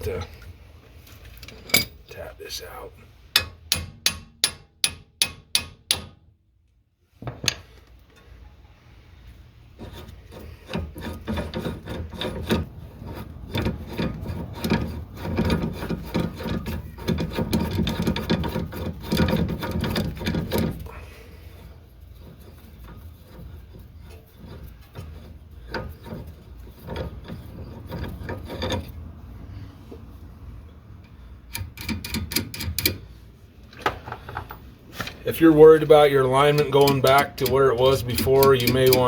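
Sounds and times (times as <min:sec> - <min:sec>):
hammer striking metal: 0:03.4 - 0:06.2
metal-on-metal scraping and clicking: 0:09.8 - 0:20.9, 0:22.0 - 0:29.0, 0:31.0 - 0:33.1, 0:33.7 - 0:39.0.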